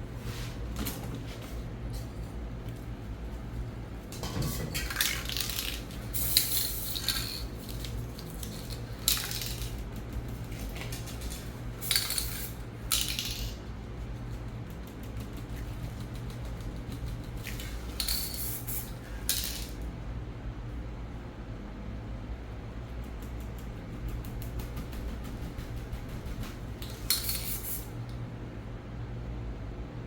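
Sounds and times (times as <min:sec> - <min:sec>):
steady low hum: 0:00.0 - 0:30.0
spray paint can hissing: 0:05.2 - 0:07.5, 0:11.8 - 0:13.5, 0:18.0 - 0:19.6, 0:26.8 - 0:27.9.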